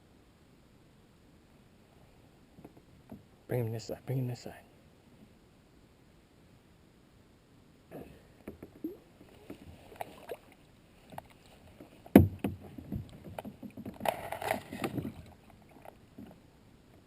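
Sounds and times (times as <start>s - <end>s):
rustling: 8.7s - 16.5s
loud thump: 12.1s - 12.6s
knocks on a kayak: 12.1s - 14.0s.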